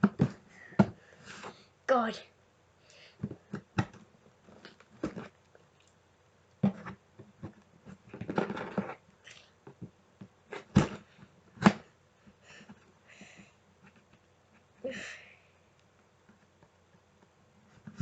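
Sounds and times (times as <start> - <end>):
cardboard box knocks and clicks: 0.0 - 1.0.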